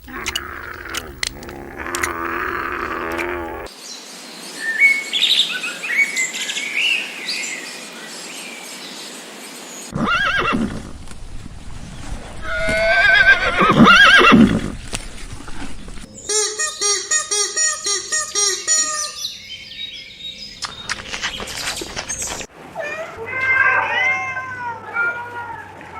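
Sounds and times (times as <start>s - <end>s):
horse whinnying: 0.0s - 3.7s, 10.0s - 10.8s, 12.4s - 14.7s
small birds chirping: 0.0s - 9.9s, 15.7s - 22.5s.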